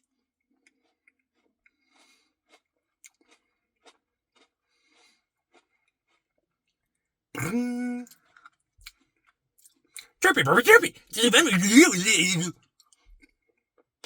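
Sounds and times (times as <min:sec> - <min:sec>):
mouth clicks and smacks: 0:10.2 - 0:12.5.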